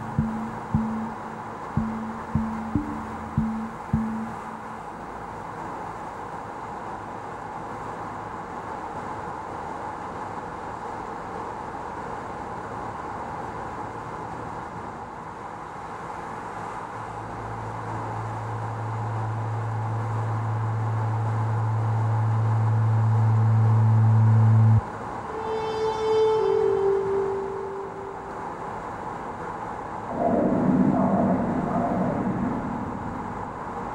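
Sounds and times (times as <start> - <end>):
low hum: 0.0 - 5.1, 17.3 - 29.2, 29.9 - 33.9
car road and tyre noise: 3.4 - 25.3, 28.0 - 33.9.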